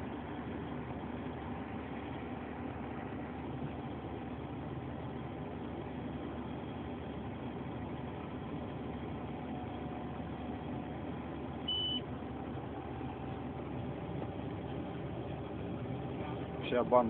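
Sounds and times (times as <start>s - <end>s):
combine harvester droning: 0.0s - 17.0s
short high-pitched beep: 11.7s - 12.0s.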